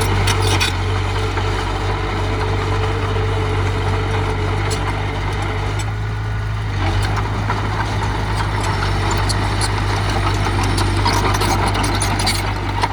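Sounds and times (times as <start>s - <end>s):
heavy machine engine running: 0.0s - 12.9s
light clicks and clanks: 6.9s - 12.9s.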